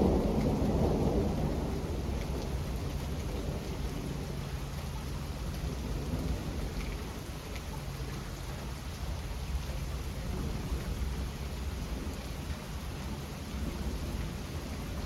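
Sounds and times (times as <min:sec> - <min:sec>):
low rumble of thunder: 0:00.0 - 0:15.0
steady rain falling: 0:00.0 - 0:15.0.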